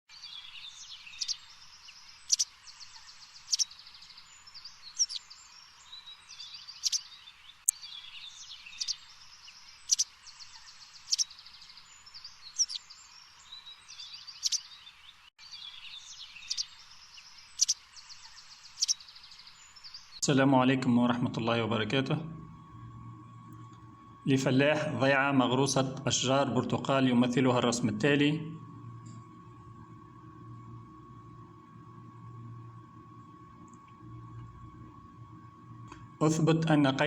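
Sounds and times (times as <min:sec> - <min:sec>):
songbirds chirping and trilling: 0:00.1 - 0:37.0
sharp bird calls: 0:00.2 - 0:20.2.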